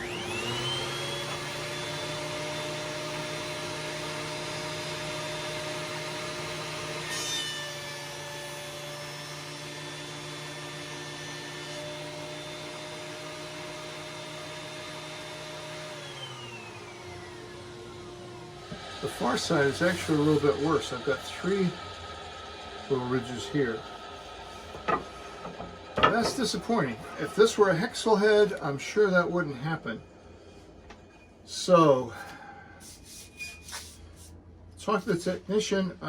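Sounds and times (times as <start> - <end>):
vacuum running: 0.0 - 7.1, 7.8 - 28.8
planer motor whining: 0.0 - 28.4.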